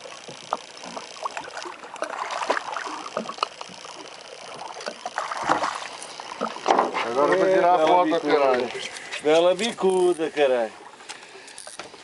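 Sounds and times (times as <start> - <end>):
water splashing around boat: 0.0 - 12.0
knocks and clatter on board: 6.4 - 7.3.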